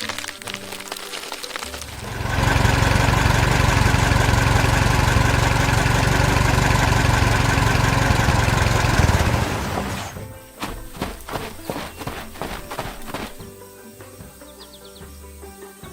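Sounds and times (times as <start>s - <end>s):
engine idling: 1.8s - 10.2s.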